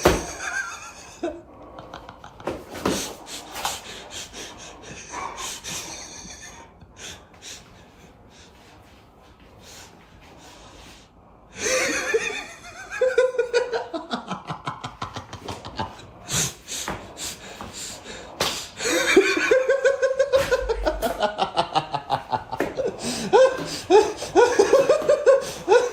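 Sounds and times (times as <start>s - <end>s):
people laughing hard: 0.0s - 7.6s, 11.6s - 16.8s, 18.8s - 25.9s.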